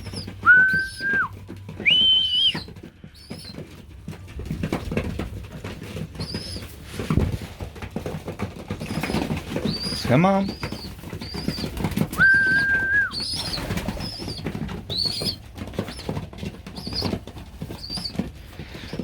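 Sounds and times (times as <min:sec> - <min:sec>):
whistled notes: 0:00.0 - 0:02.7, 0:11.2 - 0:14.3
pigeons clicking and shuffling: 0:00.0 - 0:19.0.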